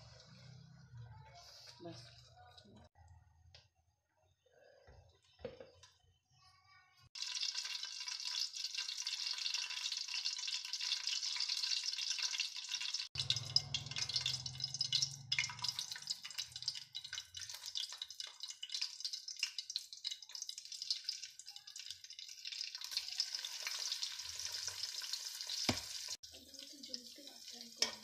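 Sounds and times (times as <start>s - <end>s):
ghee sizzling and crackling: 7.2s - 28.0s.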